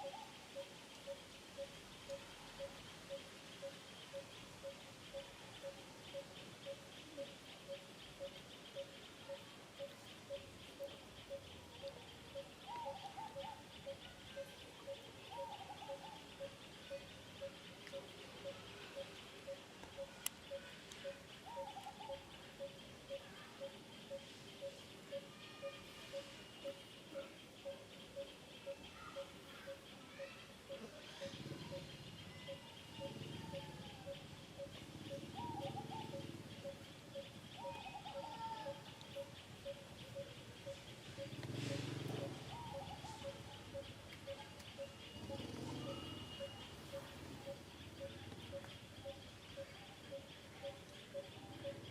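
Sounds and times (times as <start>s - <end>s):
birds chirping: 0.0s - 51.9s
wavering animal calls: 0.0s - 51.9s.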